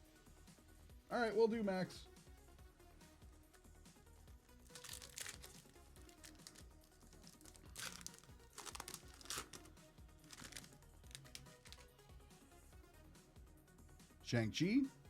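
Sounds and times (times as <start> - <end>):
faint background music: 0.0 - 15.0
card pack wrapper crinkling and tearing: 4.6 - 11.9.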